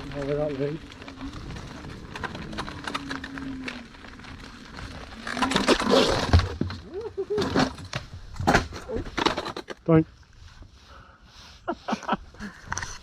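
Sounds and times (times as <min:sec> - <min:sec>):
light ticks and rustle: 0:00.0 - 0:05.4.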